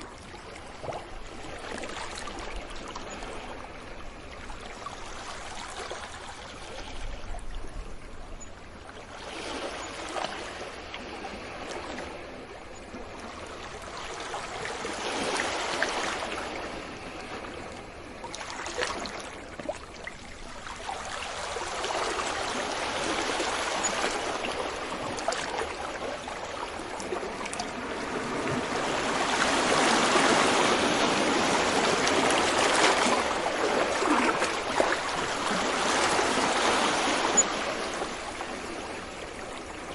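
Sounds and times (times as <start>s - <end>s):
sea waves washing onto beach: 9.0s - 39.9s.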